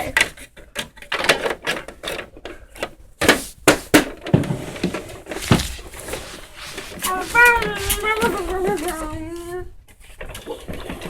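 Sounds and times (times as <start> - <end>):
plastic toys clicking and knocking: 0.0 - 2.6.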